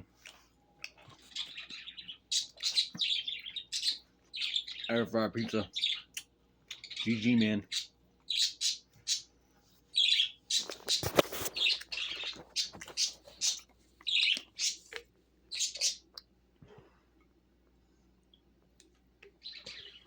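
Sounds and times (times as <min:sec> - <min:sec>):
pet bird chirping and squawking: 0:01.3 - 0:04.9, 0:05.7 - 0:09.3, 0:09.9 - 0:14.9, 0:15.5 - 0:16.1, 0:19.4 - 0:20.0.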